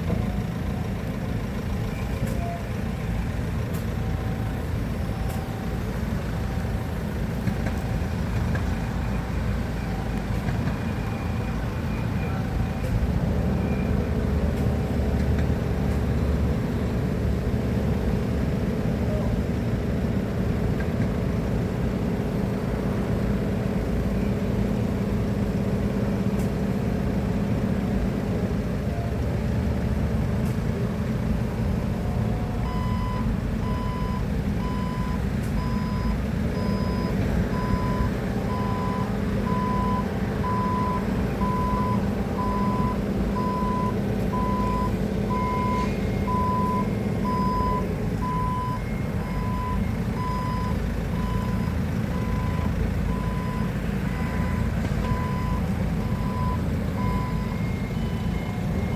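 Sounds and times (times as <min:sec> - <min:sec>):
forklift diesel engine: 0:00.0 - 0:58.9
reversing alarm beeping: 0:32.1 - 0:58.9.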